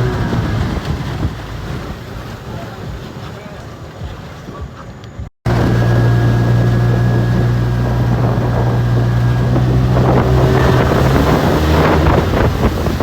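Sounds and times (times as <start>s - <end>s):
wind noise on microphone: 0.0s - 3.4s, 4.0s - 13.0s
boat motor running: 0.0s - 13.0s
rough rushing noise: 5.4s - 13.0s.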